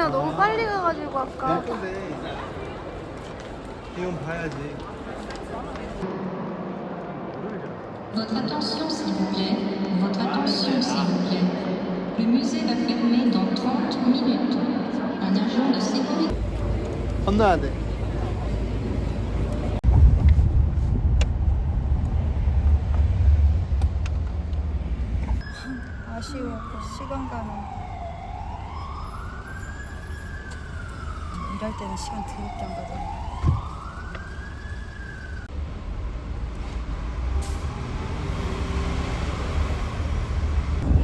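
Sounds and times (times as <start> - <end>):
large vehicle engine: 16.3 - 26.0, 29.6 - 41.0
passing cars rumbling: 16.3 - 28.0, 28.7 - 41.0.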